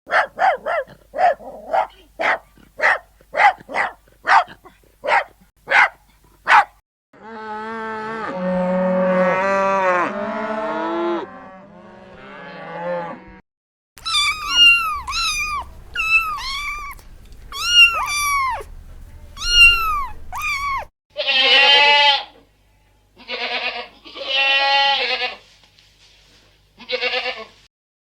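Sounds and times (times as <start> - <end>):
puppy yipping: 0.1 - 6.7, 14.0 - 20.9.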